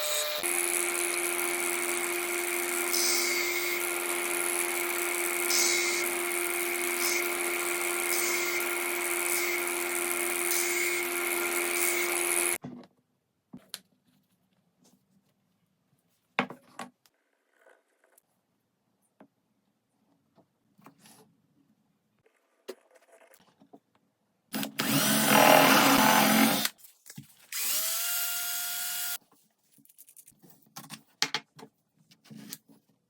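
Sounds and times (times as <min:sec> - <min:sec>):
electric power tool cutting wood: 0:00.0 - 0:12.6, 0:24.6 - 0:26.8, 0:27.5 - 0:29.2.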